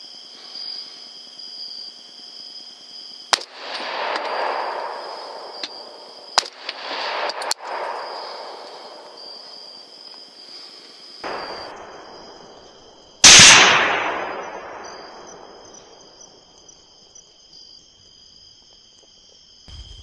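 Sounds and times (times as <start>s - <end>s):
loud gunshot: 3.4s - 9.1s, 11.3s - 12.6s, 13.2s - 15.6s, 19.7s - 20.0s
sharp bang: 19.7s - 20.0s.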